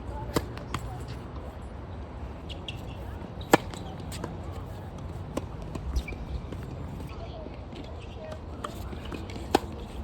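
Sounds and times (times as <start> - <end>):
tennis ball struck by racket: 3.4 - 4.4, 9.0 - 9.8.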